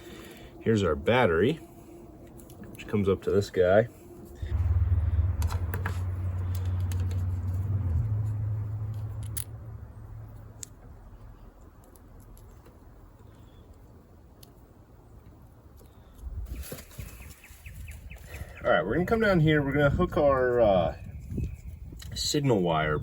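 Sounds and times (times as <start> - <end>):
loud low rumble: 4.4 - 10.3.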